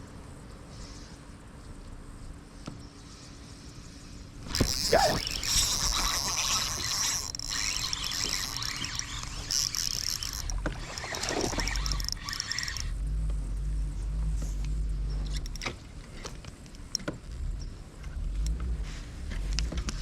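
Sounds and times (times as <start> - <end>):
water splashing and sloshing: 4.4 - 12.9
low steady hum: 4.4 - 20.0.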